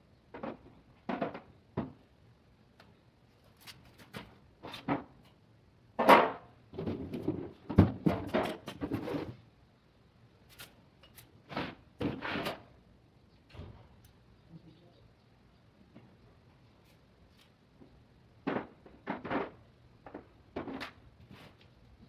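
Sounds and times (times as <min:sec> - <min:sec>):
objects knocking and scraping: 0:00.3 - 0:02.0, 0:03.7 - 0:05.3, 0:06.0 - 0:09.4, 0:11.0 - 0:12.7, 0:17.8 - 0:21.6.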